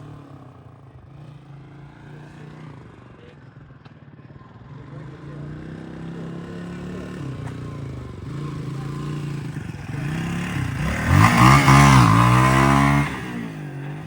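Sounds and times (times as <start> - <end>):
motorcycle engine revving: 5.0 - 14.0.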